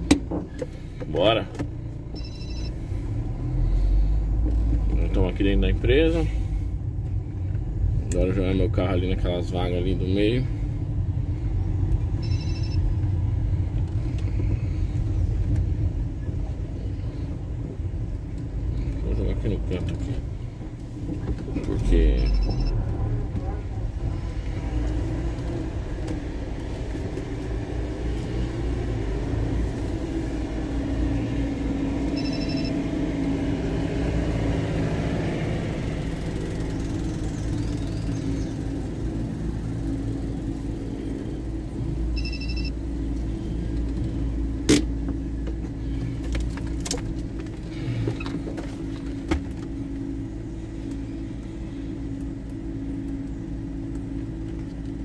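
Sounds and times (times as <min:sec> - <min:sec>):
car engine running: 0:00.0 - 0:55.0
short electronic beeps: 0:02.2 - 0:02.8, 0:12.2 - 0:12.8, 0:22.1 - 0:22.8, 0:32.2 - 0:32.8, 0:42.2 - 0:42.8.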